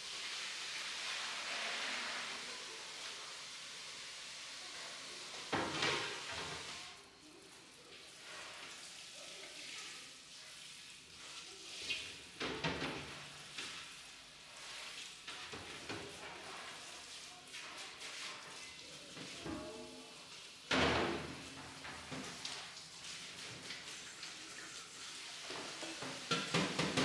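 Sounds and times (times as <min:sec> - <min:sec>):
steady kitchen hiss: 0:00.0 - 0:27.0
kitchenware clattering: 0:25.5 - 0:27.0.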